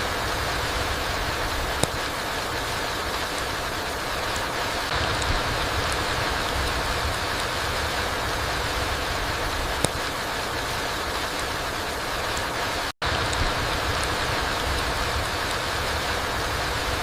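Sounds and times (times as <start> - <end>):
rain on forest floor: 0.0 - 17.0.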